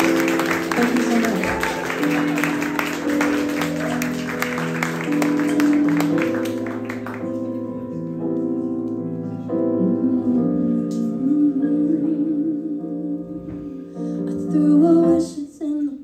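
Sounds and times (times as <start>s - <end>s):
piano playing slow chords: 0.0s - 16.0s.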